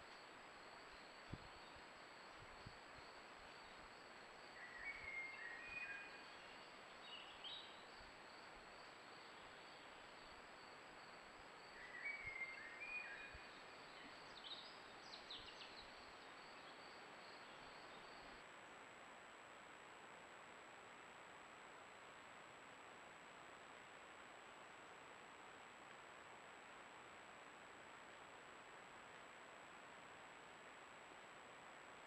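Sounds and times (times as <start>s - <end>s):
songbird singing: 0.0s - 18.4s
microphone hiss: 0.0s - 32.0s.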